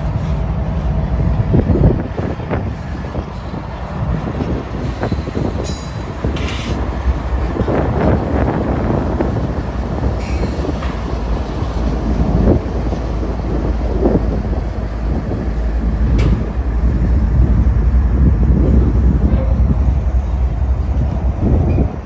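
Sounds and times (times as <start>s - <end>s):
freight train rumbling past: 0.0s - 22.0s
knocks from train wheels: 16.1s - 16.6s.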